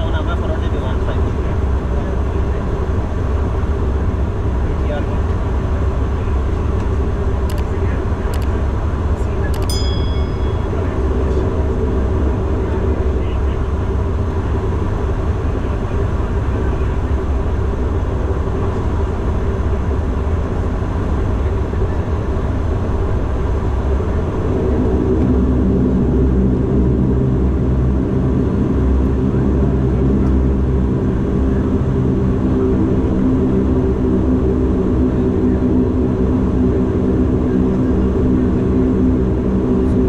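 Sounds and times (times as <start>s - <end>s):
airplane cabin engine rumble: 0.0s - 40.0s
propeller hum: 0.0s - 40.0s.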